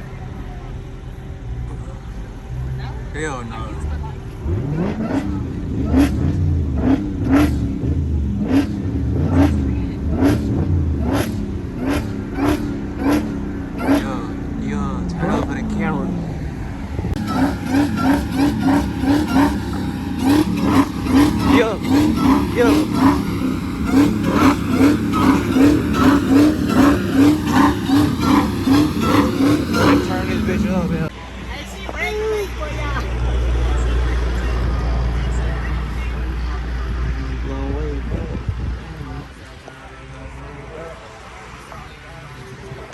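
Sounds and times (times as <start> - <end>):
car engine revving high: 2.4 - 31.2.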